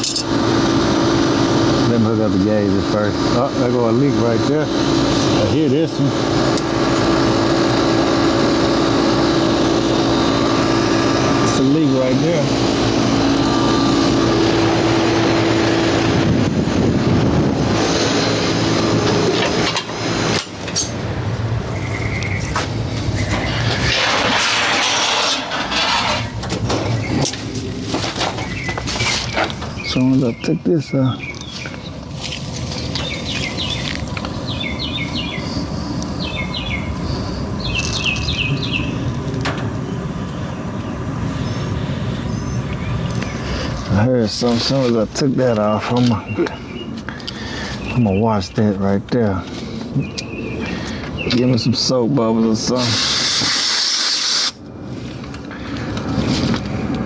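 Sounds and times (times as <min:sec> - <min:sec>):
air conditioner unit running: 0:00.0 - 0:57.0
low rumble: 0:12.5 - 0:30.0
bird chirping: 0:21.6 - 0:23.9, 0:26.8 - 0:27.5, 0:28.3 - 0:39.1, 0:39.8 - 0:43.8, 0:45.6 - 0:48.6, 0:49.6 - 0:51.9
refrigerant hissing: 0:52.6 - 0:54.6.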